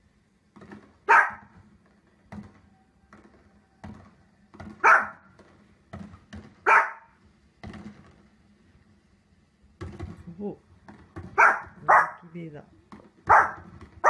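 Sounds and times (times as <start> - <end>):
small dog barking: 1.1 - 1.5, 4.8 - 5.3, 6.6 - 7.2, 11.4 - 12.3, 13.3 - 13.7.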